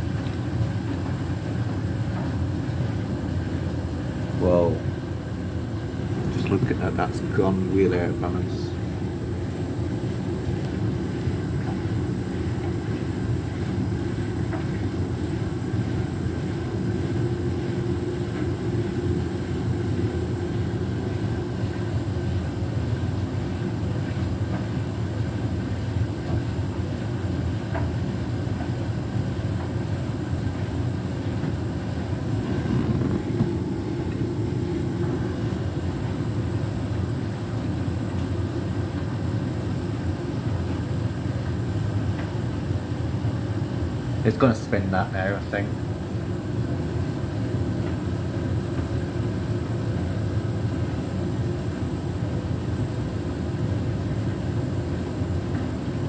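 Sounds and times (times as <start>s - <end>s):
washing machine drum rumbling: 0.0s - 56.0s.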